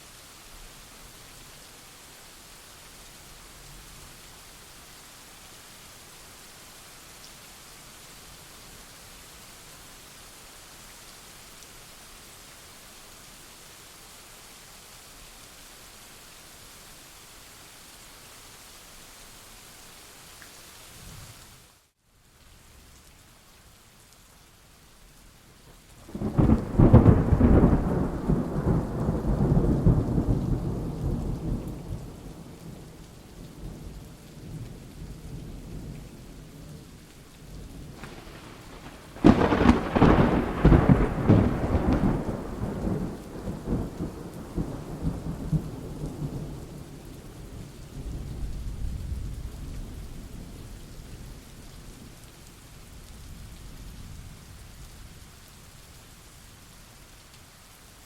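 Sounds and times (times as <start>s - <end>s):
steady rain: 0.0s - 58.0s
thunder rumbling: 26.1s - 32.6s, 37.8s - 46.6s
sharp thunder crack: 38.0s - 43.0s.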